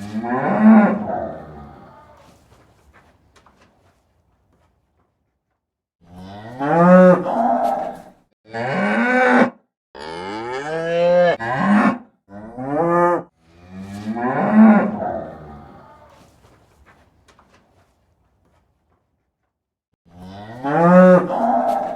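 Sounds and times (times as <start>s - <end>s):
cattle mooing: 0.0s - 2.2s, 6.1s - 16.2s, 20.1s - 21.9s.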